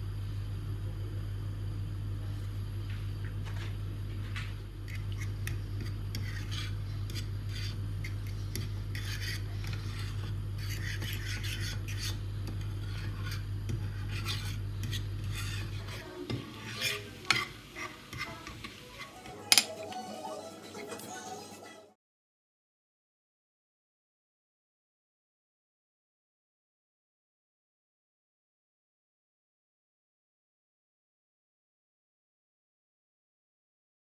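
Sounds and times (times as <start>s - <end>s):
steady low hum: 0.0s - 19.0s
utensils scraping and rubbing: 5.8s - 21.7s
dishes clicking and knocking: 18.2s - 20.1s.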